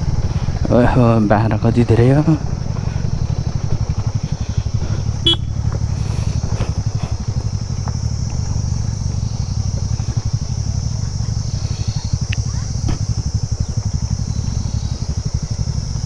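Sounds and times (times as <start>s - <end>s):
scooter engine chugging: 0.0s - 16.0s.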